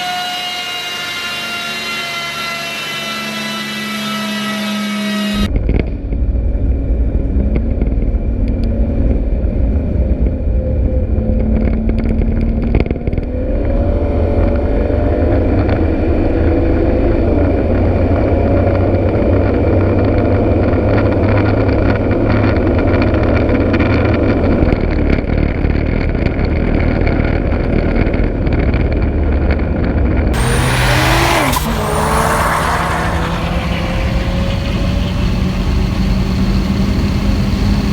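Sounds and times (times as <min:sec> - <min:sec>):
turbo hissing rush: 0:30.4 - 0:36.9
car engine rumbling: 0:30.4 - 0:37.9.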